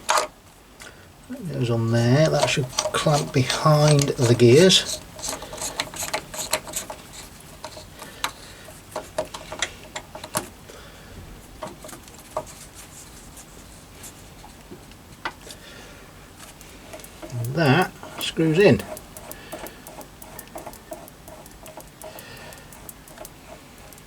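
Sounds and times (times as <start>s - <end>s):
gear puller clicks and taps: 2.2s - 8.4s, 9.0s - 10.5s, 16.5s - 24.0s.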